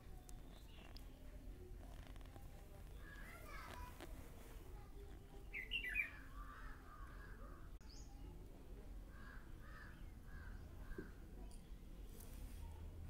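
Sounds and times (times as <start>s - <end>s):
birds calling: 5.5s - 7.8s.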